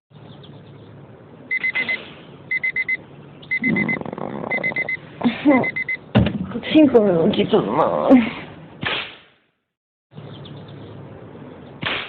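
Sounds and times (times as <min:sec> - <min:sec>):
alarm clock beeping: 0:01.5 - 0:03.9, 0:04.5 - 0:05.0, 0:05.6 - 0:06.0
sleepy voice: 0:03.6 - 0:05.6.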